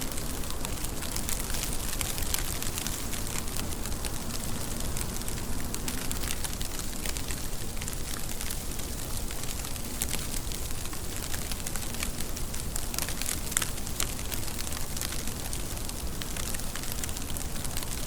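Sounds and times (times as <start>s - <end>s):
raindrops clicking on a surface: 0.0s - 18.0s
steady rain hiss: 0.0s - 18.0s.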